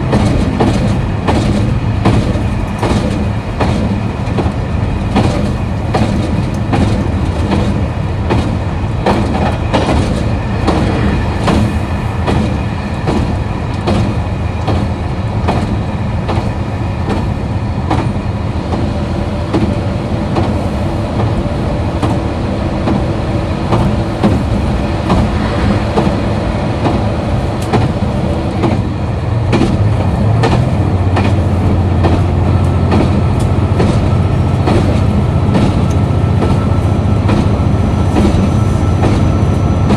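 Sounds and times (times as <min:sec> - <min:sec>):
diesel engine droning: 0:00.0 - 0:39.9
wheels clattering over rail joints: 0:19.4 - 0:39.9.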